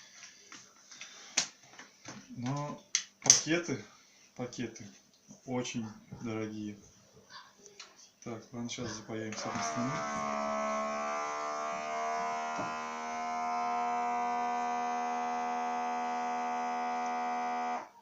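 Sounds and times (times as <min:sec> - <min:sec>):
vacuum sealer electric hum: 0:09.3 - 0:18.0.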